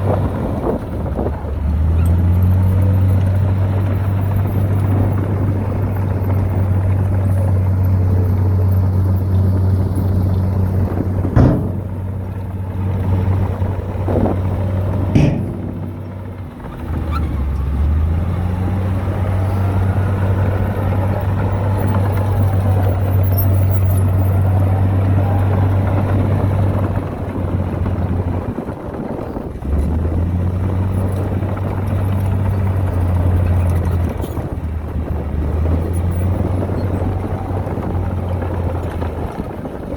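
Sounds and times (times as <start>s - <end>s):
diesel engine under load: 0.0s - 39.9s
sharp metallic clanks: 11.2s - 14.3s, 15.0s - 17.7s.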